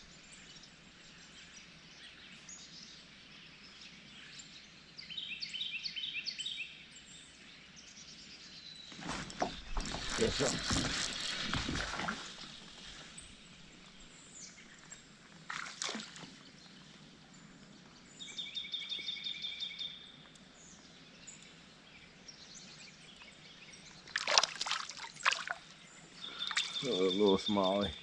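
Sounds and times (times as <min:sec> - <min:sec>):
water sloshing around a kayak: 0:08.9 - 0:16.8, 0:24.0 - 0:27.1
water splash: 0:09.0 - 0:14.0, 0:15.5 - 0:16.4, 0:24.1 - 0:25.7
high bird calls: 0:26.0 - 0:28.0.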